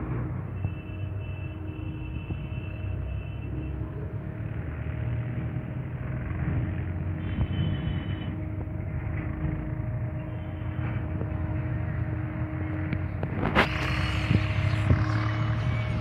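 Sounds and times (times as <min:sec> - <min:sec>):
train rumbling: 0:02.3 - 0:16.0
high-pitched squeal: 0:10.1 - 0:16.0.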